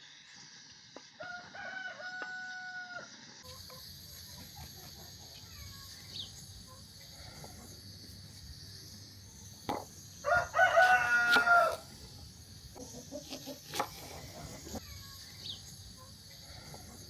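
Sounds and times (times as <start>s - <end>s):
rooster crowing: 1.2s - 3.1s, 10.2s - 11.9s.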